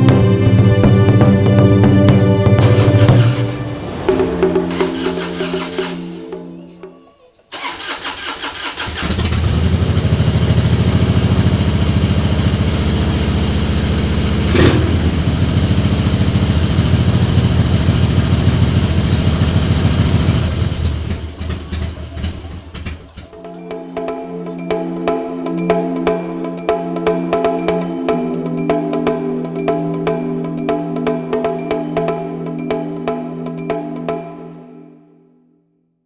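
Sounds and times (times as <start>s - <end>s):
motorcycle starter cranking: 7.6s - 9.9s.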